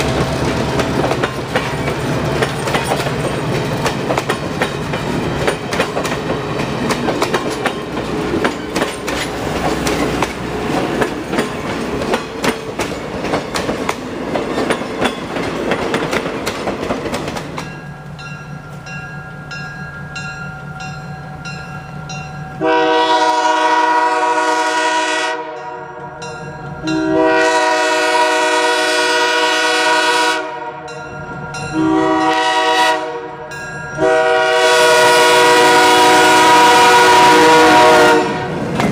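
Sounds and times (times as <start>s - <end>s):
train wheels clicking over rail joints: 0.0s - 18.9s, 38.5s - 38.9s
train horn blasts: 22.6s - 26.2s, 26.8s - 31.0s, 31.7s - 38.6s.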